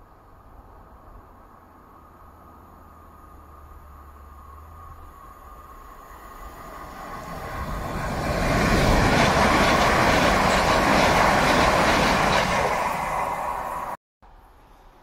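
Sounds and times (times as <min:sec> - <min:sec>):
train wheels rushing on rails: 0:05.4 - 0:14.0.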